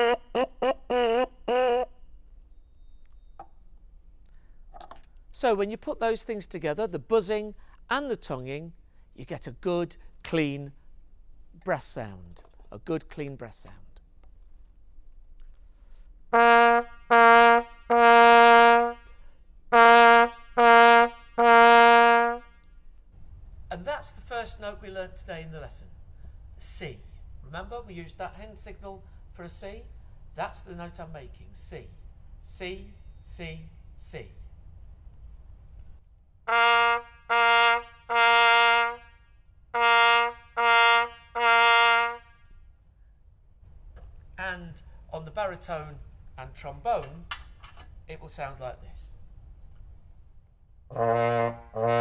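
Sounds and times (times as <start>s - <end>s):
cornet playing tongued notes: 0.0s - 1.9s, 16.3s - 22.6s, 36.5s - 39.1s, 39.8s - 42.3s, 50.9s - 52.0s.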